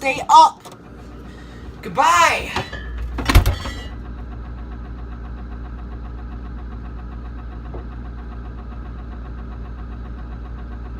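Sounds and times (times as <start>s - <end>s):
motor idling with low hum: 3.0s - 10.9s.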